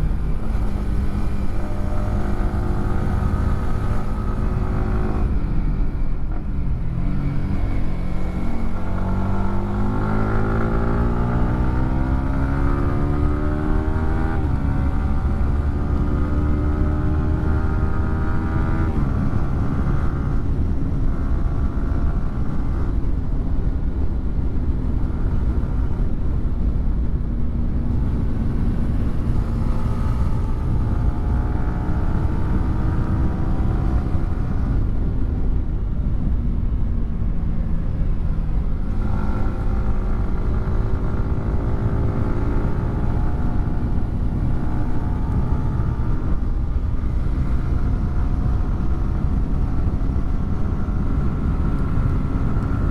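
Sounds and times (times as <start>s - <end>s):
motorcycle engine revving: 0.0s - 20.4s, 27.8s - 35.0s, 37.7s - 52.9s.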